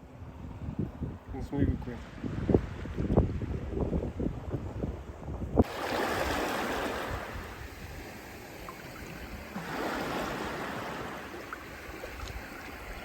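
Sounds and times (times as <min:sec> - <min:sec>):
sea water washing in: 0:05.6 - 0:13.0.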